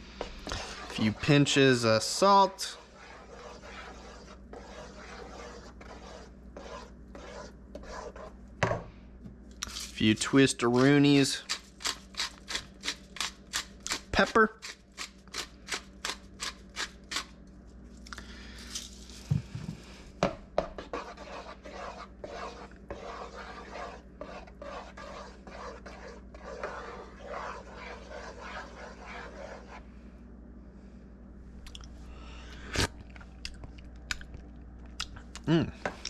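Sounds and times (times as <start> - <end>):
spoon scraping a pot: 20.7 - 29.8.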